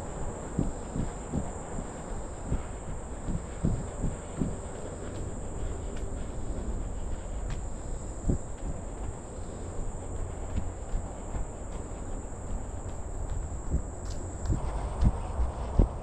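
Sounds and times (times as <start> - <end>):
high-pitched insect drone: 0.0 - 14.8
low rumbling noise: 0.0 - 16.0.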